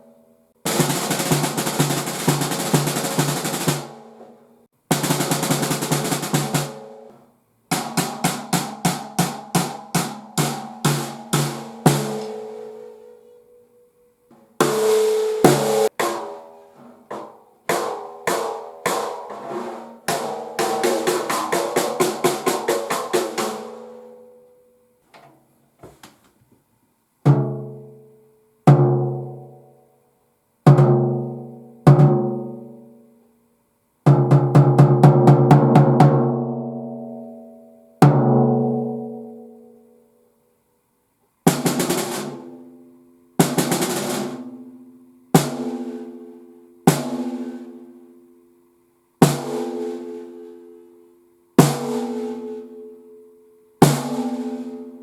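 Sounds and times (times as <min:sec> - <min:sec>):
snare drum played with sticks: 0:00.6 - 0:13.0, 0:14.3 - 0:24.2, 0:34.1 - 0:36.3, 0:41.5 - 0:42.6, 0:43.4 - 0:44.6, 0:45.4 - 0:46.2, 0:46.9 - 0:47.7, 0:53.8 - 0:54.8.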